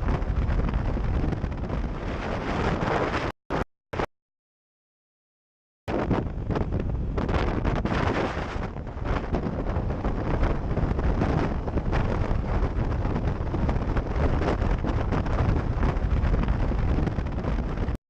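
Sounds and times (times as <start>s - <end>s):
wind buffeting microphone: 0.0s - 3.3s, 5.9s - 18.0s.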